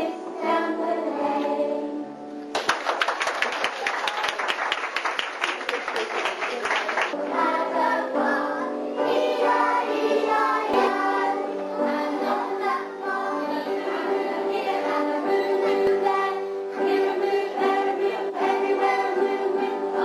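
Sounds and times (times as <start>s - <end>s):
choir singing: 0.0s - 2.4s, 7.1s - 20.0s.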